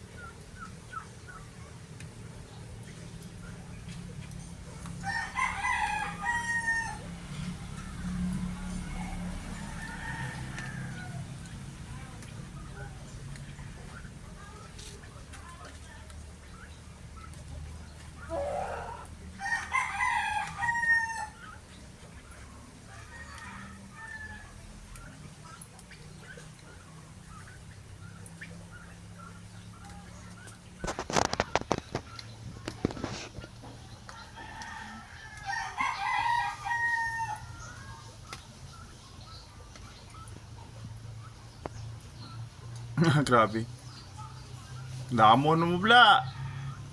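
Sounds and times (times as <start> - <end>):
rooster crowing: 5.0 - 11.5, 18.3 - 21.4, 22.9 - 24.6, 34.1 - 38.0, 46.0 - 46.9.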